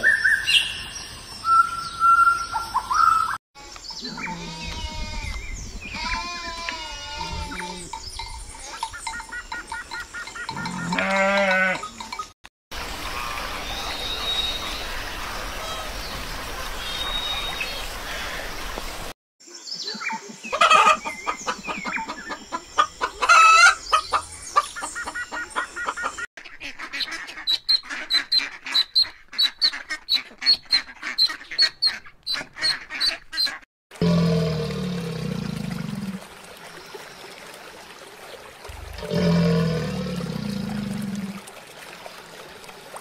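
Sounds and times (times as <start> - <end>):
chickens calling: 20.2 - 33.6.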